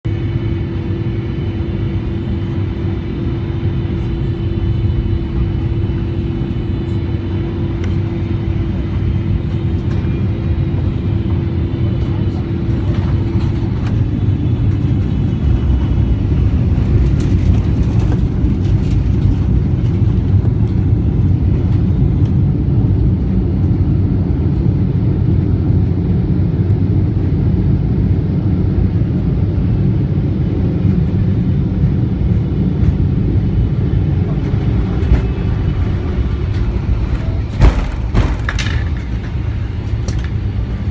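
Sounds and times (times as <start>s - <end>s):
airplane cabin engine rumble: 0.0s - 40.9s
thud: 34.4s - 39.4s.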